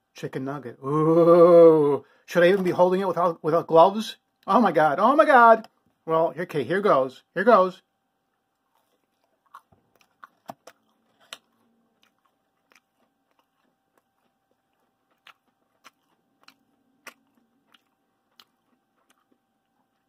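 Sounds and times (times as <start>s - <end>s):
crunchy chewing: 8.3s - 20.0s.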